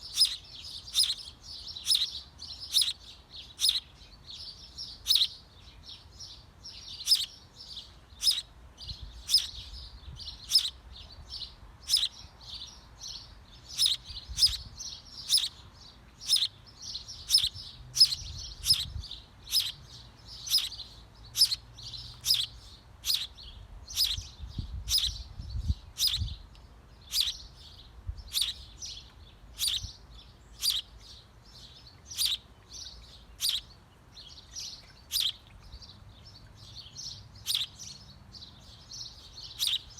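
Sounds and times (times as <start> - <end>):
small bird chirping: 0.0 - 39.9.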